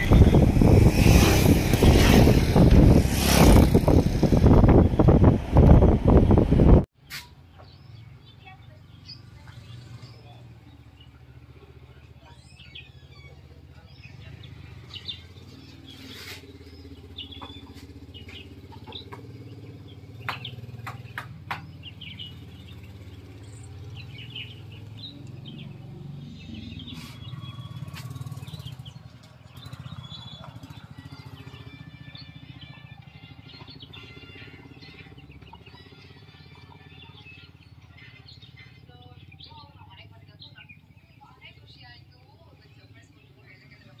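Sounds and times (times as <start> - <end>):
birds chirping: 0.0 - 6.4, 7.0 - 44.0.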